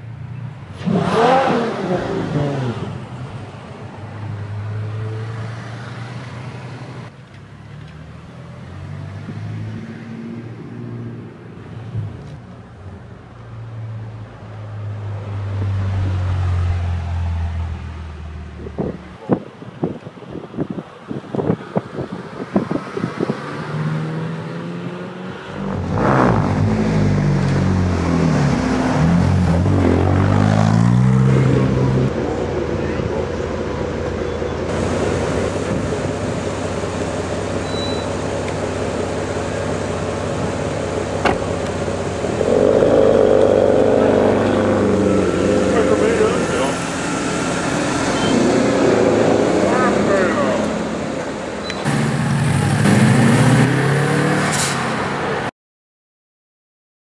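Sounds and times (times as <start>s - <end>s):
car engine revving hard: 0.8s - 2.8s, 40.7s - 51.1s, 51.9s - 54.8s.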